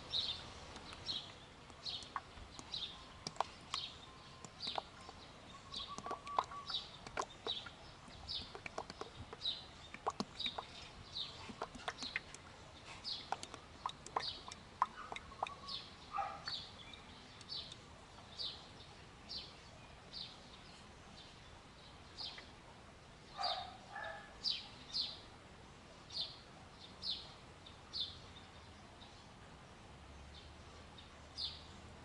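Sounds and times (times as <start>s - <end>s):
low rough bird calls: 0.0s - 18.6s
bird chirping: 0.0s - 22.6s, 23.3s - 25.3s
sharp ticks: 1.7s - 3.8s, 5.9s - 7.6s, 8.4s - 10.7s, 13.3s - 15.6s.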